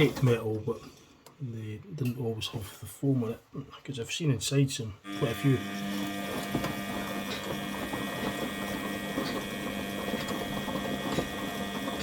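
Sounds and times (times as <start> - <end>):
crackly rattle of drum and motor: 5.1 - 12.0
washing machine running: 5.1 - 12.0.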